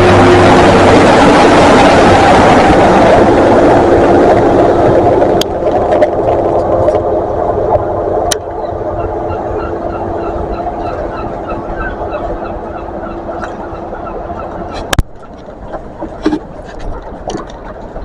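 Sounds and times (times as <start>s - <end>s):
train rumbling past: 0.0s - 18.0s
birds calling: 8.4s - 18.0s.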